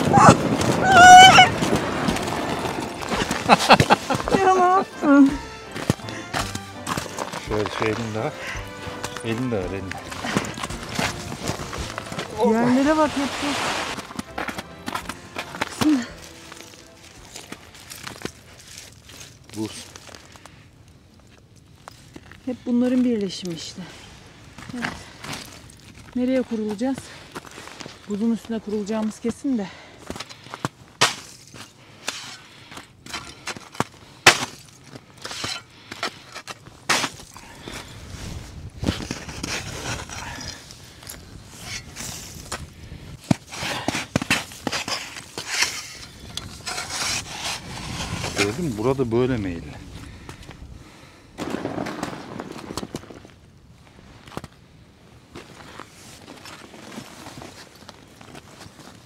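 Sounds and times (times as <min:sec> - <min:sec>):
ice cracking: 0:00.0 - 0:20.6
ice crust crunching underfoot: 0:00.0 - 0:49.2, 0:55.2 - 0:59.0
footsteps crunching on ice: 0:01.4 - 0:20.5.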